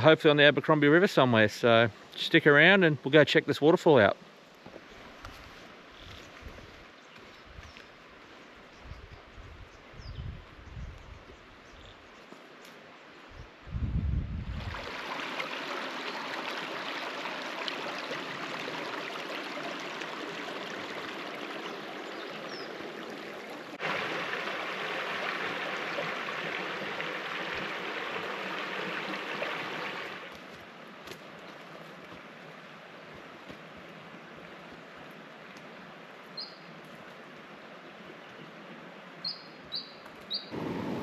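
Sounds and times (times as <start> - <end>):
creek water over rocks: 14.4 - 39.6.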